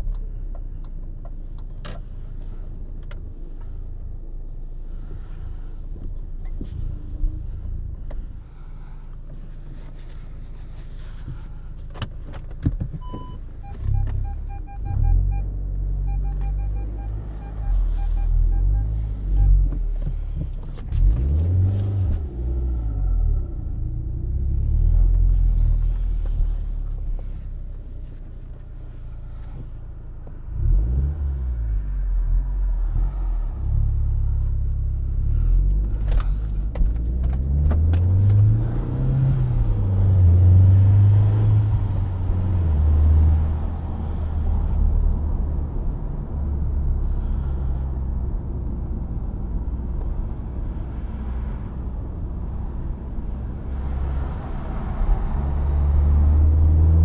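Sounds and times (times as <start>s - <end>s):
low road rumble: 0.0s - 57.0s
car engine revving: 13.7s - 27.3s, 32.7s - 47.8s, 52.5s - 57.0s.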